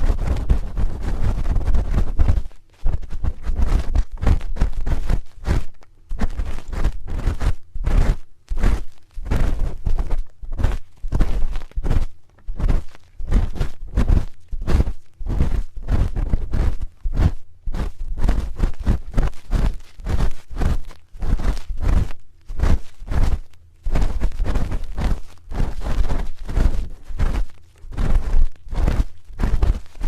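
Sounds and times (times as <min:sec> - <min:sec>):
spoon scraping microphone: 0:00.0 - 0:17.0.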